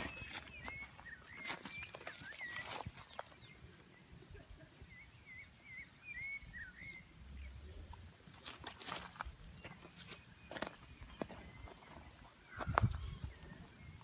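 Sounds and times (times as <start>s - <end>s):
footsteps crunching on leaf litter: 0.0s - 3.5s, 8.2s - 13.2s.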